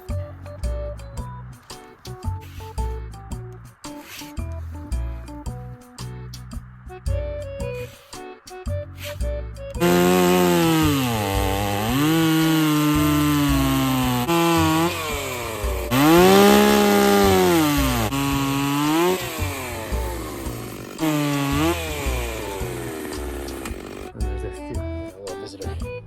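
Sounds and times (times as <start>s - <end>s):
chainsaw cutting wood: 9.8s - 24.1s.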